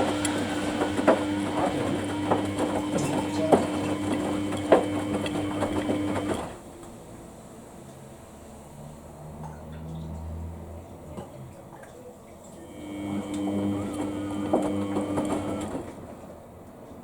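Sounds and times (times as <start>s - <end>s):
tumbling load knocking: 0.0s - 6.4s
washing machine motor hum: 0.0s - 8.4s, 12.6s - 16.3s.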